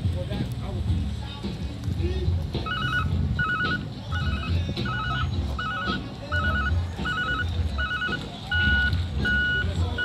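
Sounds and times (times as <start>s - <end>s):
electronic warning beeper: 2.6s - 10.0s.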